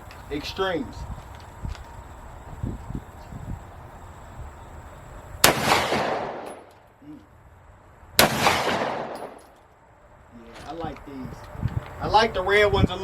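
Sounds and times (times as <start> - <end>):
shotgun blasts with echo: 5.4 - 6.7, 8.2 - 9.4.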